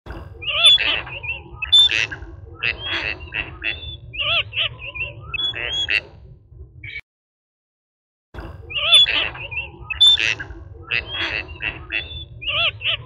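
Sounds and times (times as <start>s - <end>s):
ducks quacking: 0.1s - 6.1s, 8.4s - 13.0s
low steady rumble: 0.1s - 6.8s.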